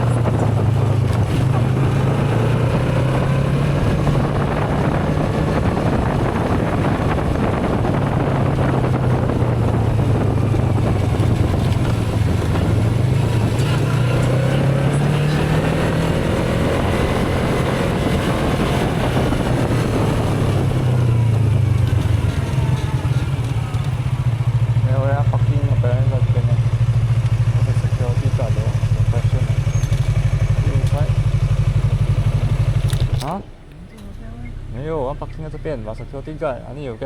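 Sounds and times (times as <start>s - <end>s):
wind noise on microphone: 0.0s - 24.9s
motorcycle engine running: 0.0s - 37.0s.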